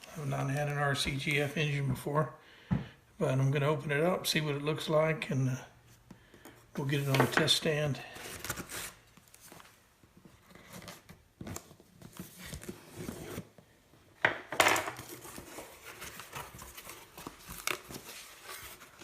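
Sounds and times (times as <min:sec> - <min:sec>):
paper and plastic crinkling: 0:15.0 - 0:19.0.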